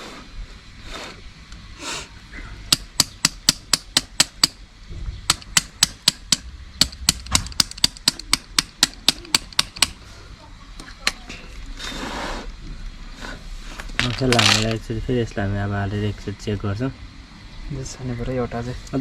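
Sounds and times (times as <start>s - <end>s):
sharp rapid tapping: 5.3s - 10.0s.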